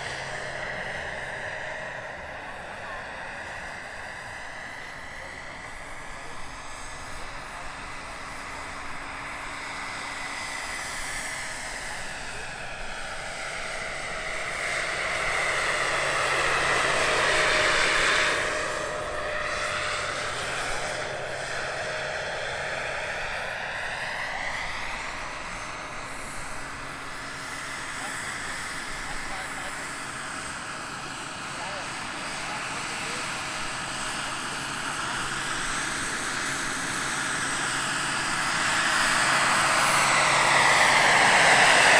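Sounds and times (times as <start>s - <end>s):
helicopter rotor noise: 0.0s - 41.9s
model helicopter turbine whining: 0.0s - 41.9s.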